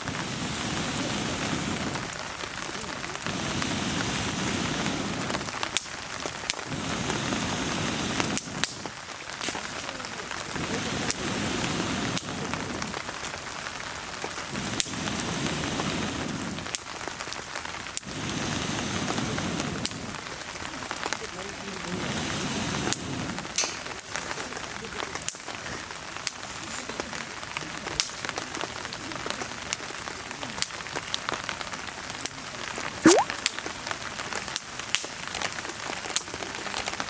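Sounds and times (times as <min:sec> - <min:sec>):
wood fire crackling: 0:00.0 - 0:22.4
rain hiss: 0:00.0 - 0:37.0.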